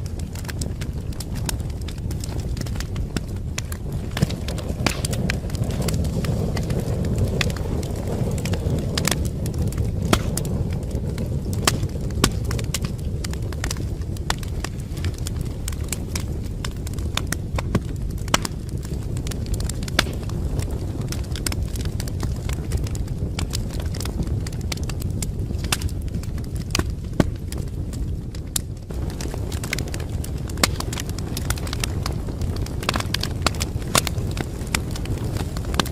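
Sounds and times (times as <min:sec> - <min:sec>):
wood fire crackling and popping: 0:00.0 - 0:35.9.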